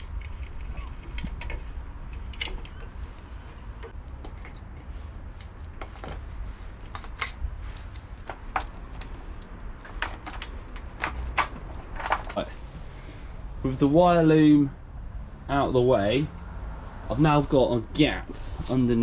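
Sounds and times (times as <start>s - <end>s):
parts clicking and knocking: 0.0s - 12.5s.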